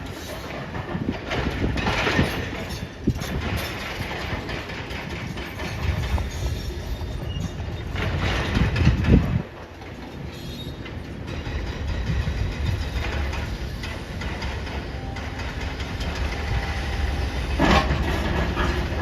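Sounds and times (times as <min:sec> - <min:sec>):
metal clanking and knocks: 0:00.2 - 0:10.1, 0:10.8 - 0:19.0
demolition machine engine: 0:12.0 - 0:19.0.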